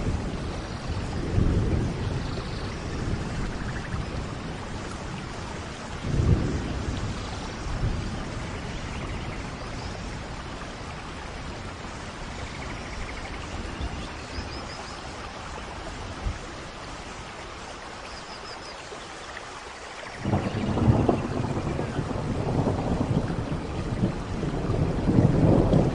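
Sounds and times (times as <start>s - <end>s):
steady rain: 0.0s - 25.9s
thunder rolling: 6.0s - 9.0s, 20.2s - 25.9s.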